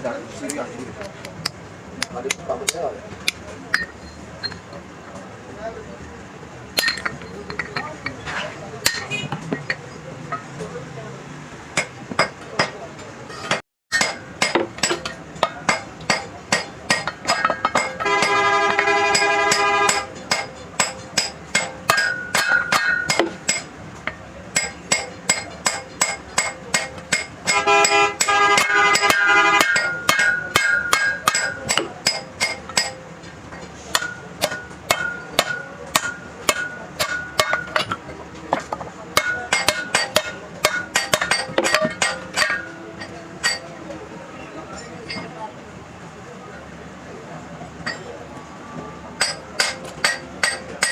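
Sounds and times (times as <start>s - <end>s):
hammer striking steel: 1.4s - 4.8s, 6.8s - 8.2s, 8.8s - 10.5s, 11.8s - 43.7s, 49.2s - 50.9s.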